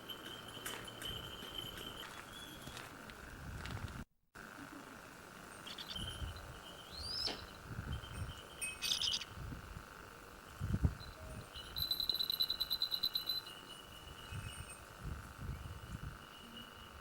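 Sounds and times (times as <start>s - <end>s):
bird calls and chirps: 5.6s - 9.3s
low wind rumbles: 9.2s - 11.5s.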